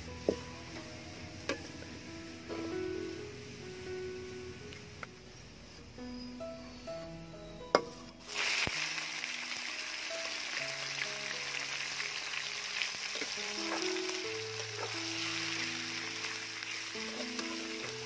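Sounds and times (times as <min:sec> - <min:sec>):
background music: 0:00.0 - 0:18.0
meat sizzling in hot oil: 0:08.2 - 0:18.0.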